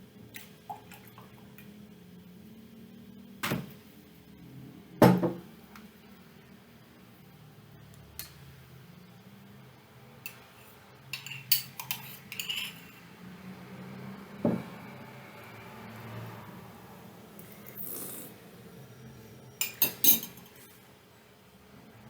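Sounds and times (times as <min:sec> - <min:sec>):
dish and utensil clinking: 0:11.1 - 0:13.1, 0:19.6 - 0:20.8.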